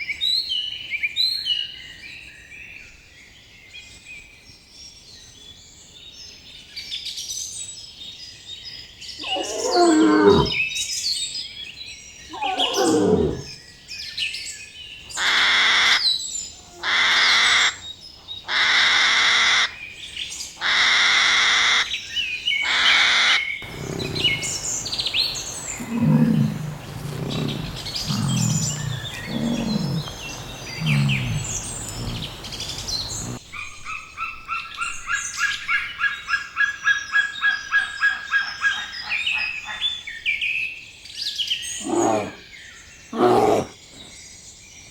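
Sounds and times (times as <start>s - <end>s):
bird chirping: 9.1s - 10.7s, 12.0s - 13.7s, 23.6s - 36.2s
animal calls: 9.2s - 10.6s, 12.3s - 13.6s, 22.7s - 34.4s, 41.8s - 42.4s, 43.2s - 44.1s
low short calls: 23.6s - 33.4s
rapid repeated call: 23.6s - 33.4s.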